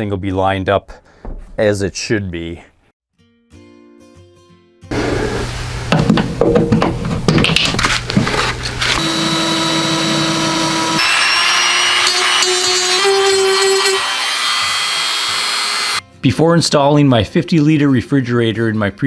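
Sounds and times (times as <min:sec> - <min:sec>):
clattering knocks: 0:05.9 - 0:08.3
power drill motor whine: 0:08.9 - 0:16.0.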